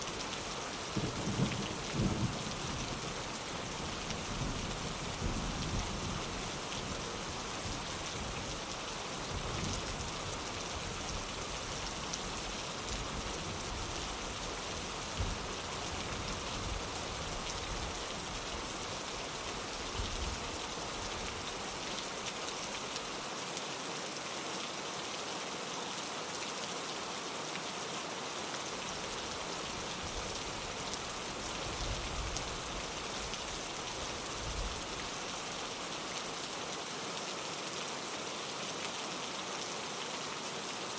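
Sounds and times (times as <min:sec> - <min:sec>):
rain falling on a window: 0:00.0 - 0:40.9.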